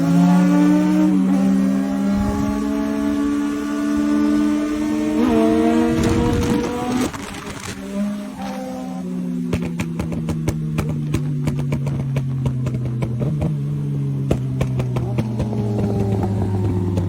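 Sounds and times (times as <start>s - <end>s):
motorcycle engine running: 9.0s - 17.0s.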